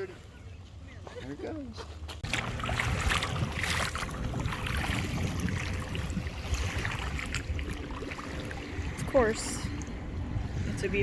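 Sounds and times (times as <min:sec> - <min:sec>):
wind buffeting microphone: 0:02.2 - 0:11.0.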